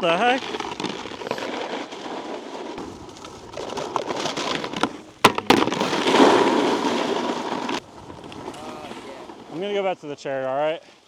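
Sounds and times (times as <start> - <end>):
snowboard scraping icy snow: 0.0 - 11.0
sharp knocks: 5.2 - 6.0.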